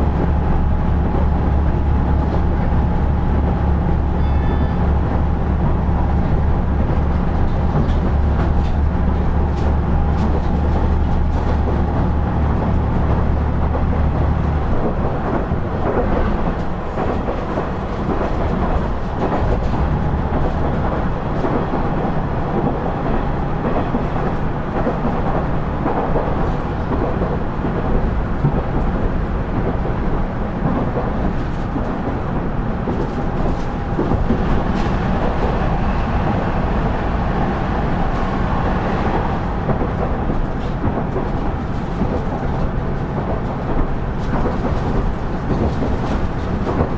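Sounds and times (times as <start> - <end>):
rail joint clicks: 0.0 - 46.9
wheels rumbling on rail: 0.0 - 46.9
diesel engine drone: 32.6 - 42.3.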